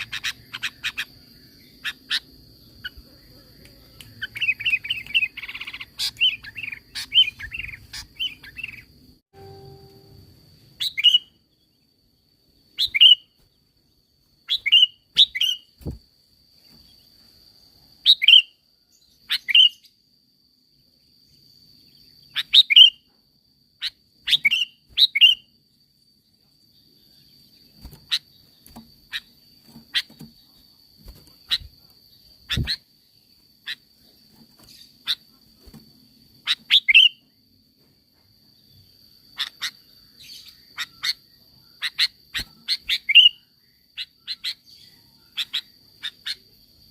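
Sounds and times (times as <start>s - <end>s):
bird calling: 0.0s - 8.9s
faint steady high tone: 9.2s - 11.9s.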